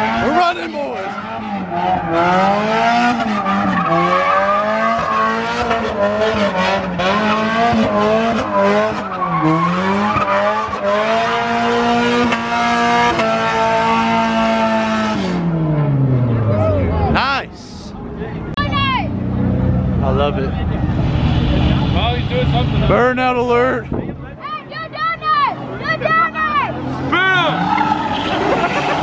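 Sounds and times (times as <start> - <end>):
spinning tyres squealing: 0.0 - 15.4, 25.4 - 29.0
car engine revving high: 0.0 - 17.2, 25.5 - 29.0.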